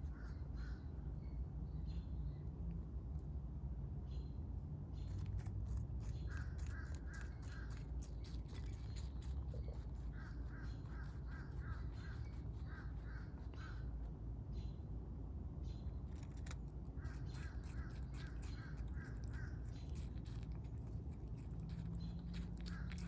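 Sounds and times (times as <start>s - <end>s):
rabbit chewing: 5.0s - 14.3s, 15.8s - 23.0s.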